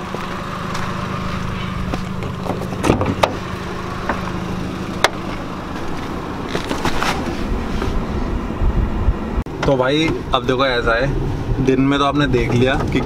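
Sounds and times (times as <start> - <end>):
handling noises: 0.0 - 8.0
car engine idling: 0.0 - 13.0.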